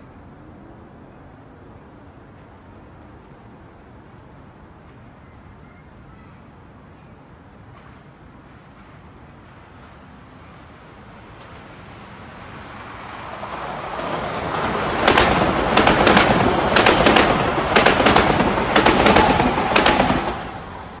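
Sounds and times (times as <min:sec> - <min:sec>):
train passing: 0:06.6 - 0:21.0
wheels clicking over rail joints: 0:13.4 - 0:21.0.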